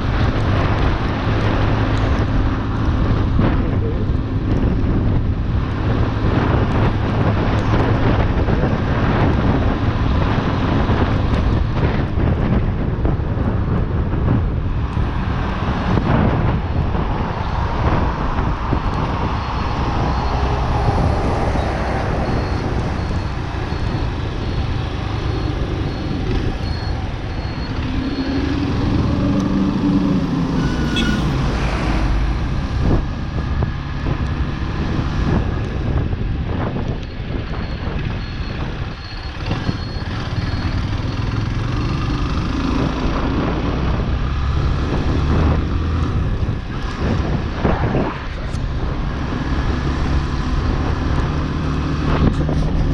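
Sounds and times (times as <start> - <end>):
road traffic: 0.0 - 52.9
wind rushing over microphone: 0.0 - 52.9.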